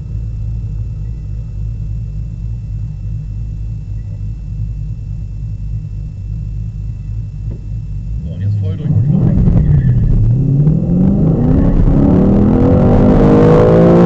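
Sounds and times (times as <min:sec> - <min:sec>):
car engine idling: 0:05.9 - 0:13.3.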